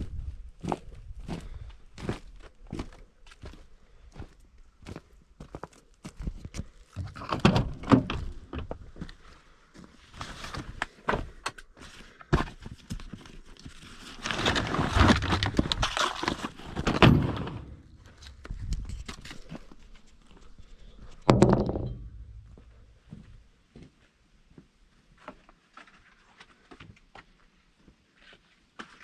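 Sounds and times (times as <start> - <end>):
heavy thunk: 16.8 - 18.2, 21.2 - 22.9
tools knocking and clanking: 16.8 - 18.8, 21.0 - 22.9
rattling clatter: 16.8 - 22.9.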